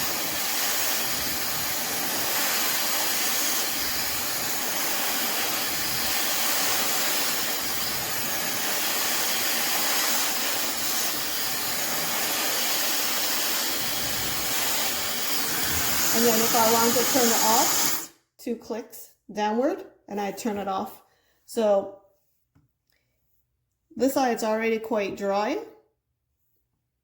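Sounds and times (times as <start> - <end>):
hair dryer airy hiss: 0.0 - 18.2.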